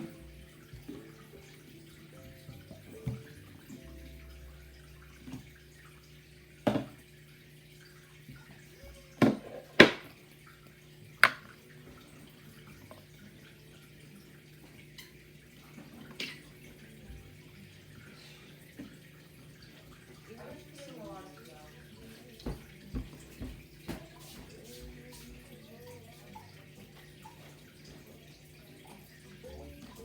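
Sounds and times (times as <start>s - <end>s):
low steady hum: 0.0s - 23.4s.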